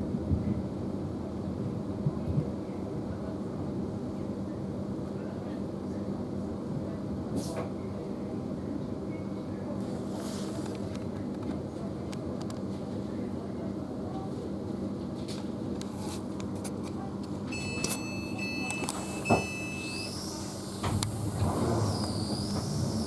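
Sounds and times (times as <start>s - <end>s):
low mechanical rumble and hum: 0.0s - 23.0s
electric train rumbling: 18.4s - 23.0s
traction motors whining: 18.8s - 23.0s.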